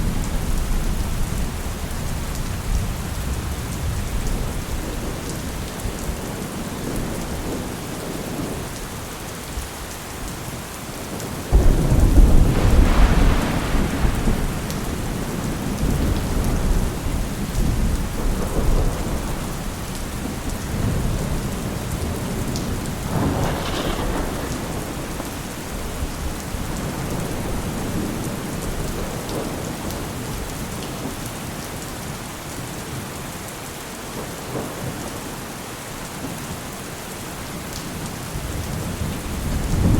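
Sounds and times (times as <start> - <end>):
heavy rain: 0.0 - 39.9
thunder crack and rumble: 11.2 - 30.9, 38.3 - 39.9.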